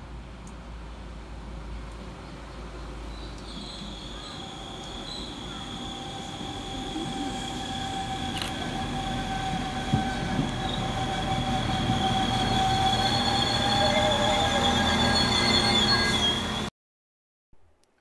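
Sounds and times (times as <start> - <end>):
diesel train rumbling: 0.1 - 16.7
high-pitched squeal: 3.7 - 16.7.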